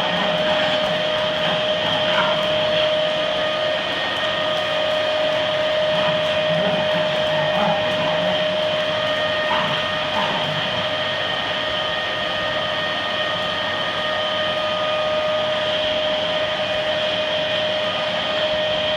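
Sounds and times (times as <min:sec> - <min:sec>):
vacuum cleaner motor whining: 0:00.0 - 0:18.9.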